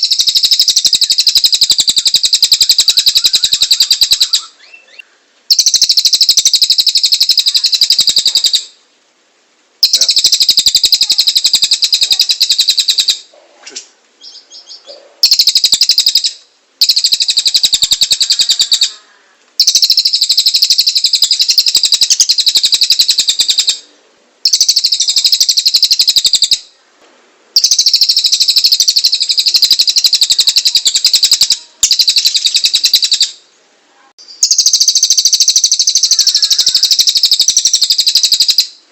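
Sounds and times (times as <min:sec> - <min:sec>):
bird singing harsh high notes: 0:14.2 - 0:26.8.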